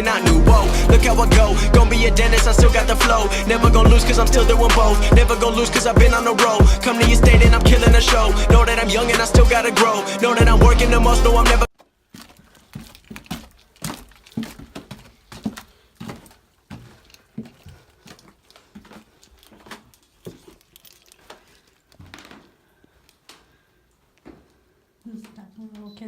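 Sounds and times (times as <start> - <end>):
small knocks and rustles: 11.8 - 23.5
footsteps in a room: 11.8 - 26.0.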